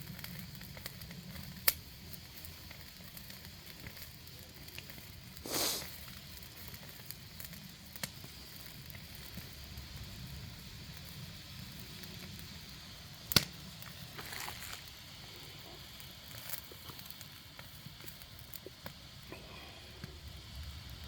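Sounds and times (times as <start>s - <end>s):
fire crackling: 0.0s - 21.0s
fire popping: 0.0s - 21.0s
brief hiss: 5.4s - 6.0s.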